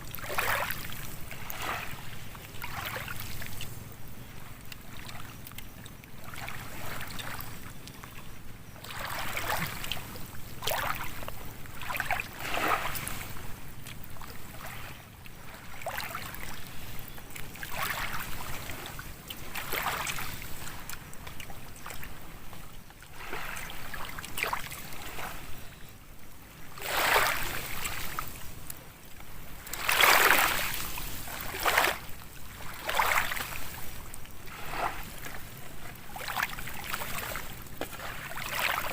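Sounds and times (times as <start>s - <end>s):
water washing and splashing: 29.6s - 35.5s, 36.1s - 38.9s.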